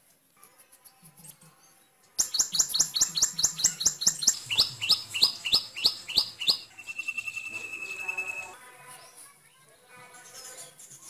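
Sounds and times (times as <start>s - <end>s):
bird chirping rapidly: 2.2s - 8.6s
whistled bird note: 2.2s - 8.6s.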